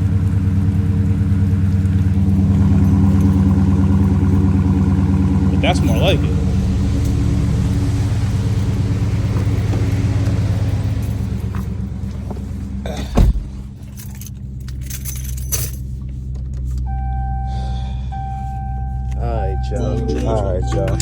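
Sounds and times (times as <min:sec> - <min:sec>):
car engine droning: 0:00.0 - 0:21.0
light clicks and jingles: 0:05.7 - 0:17.0
heavy thump: 0:13.0 - 0:13.7.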